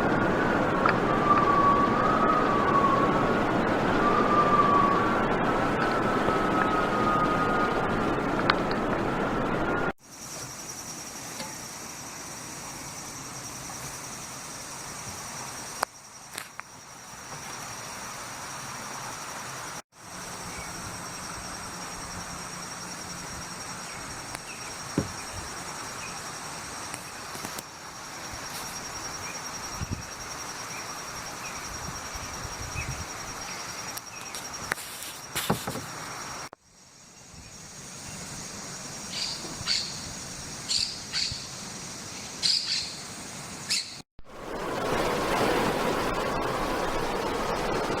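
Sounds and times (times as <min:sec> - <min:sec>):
wind rushing: 0:00.0 - 0:10.0, 0:44.2 - 0:48.0
insects trilling: 0:10.0 - 0:48.0
bird chirps: 0:39.1 - 0:40.1, 0:40.7 - 0:44.0.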